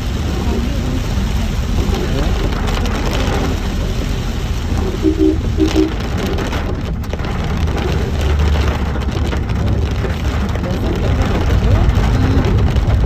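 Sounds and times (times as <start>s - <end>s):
engine and tyres rumble: 0.0s - 13.0s
heavy rain on a car: 0.0s - 13.0s
short beeps: 4.8s - 6.0s.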